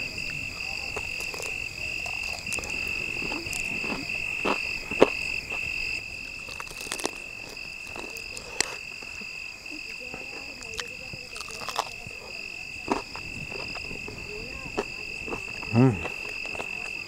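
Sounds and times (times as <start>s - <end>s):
person chewing crispy chicken: 0.8s - 9.3s, 10.1s - 13.9s.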